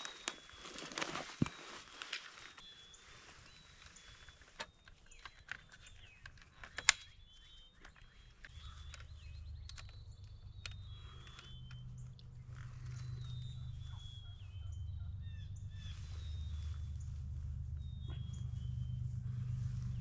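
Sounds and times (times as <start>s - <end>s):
songbirds whistling: 0.0s - 20.0s
sharp clicks and snaps: 4.6s - 13.6s
low steady rumble: 5.1s - 20.0s.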